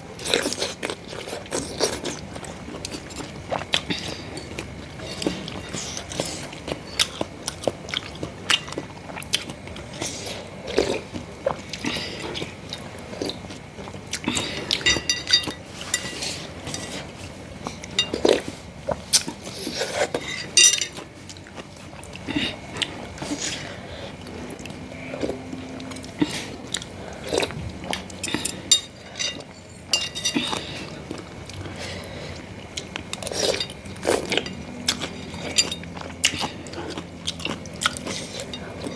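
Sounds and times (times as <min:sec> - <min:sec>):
person chewing: 0:00.1 - 0:38.9
spoon clinking against bowl: 0:14.8 - 0:16.1, 0:20.5 - 0:21.0.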